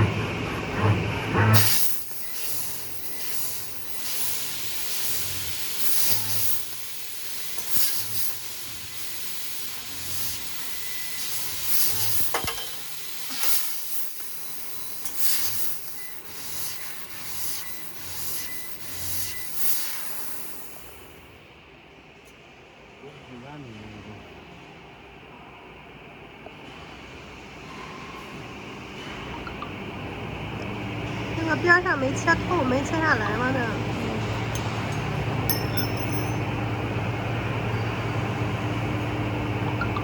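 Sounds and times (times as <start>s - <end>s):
laser cutter gas hissing: 1.5s - 21.3s
low machine hum: 28.9s - 40.0s.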